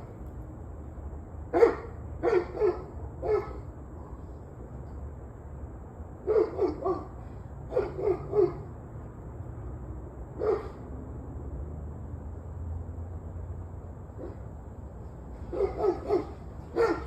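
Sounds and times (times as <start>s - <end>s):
dog barking: 1.5s - 4.2s, 6.2s - 8.7s, 10.4s - 10.8s, 14.2s - 14.5s, 15.5s - 17.0s.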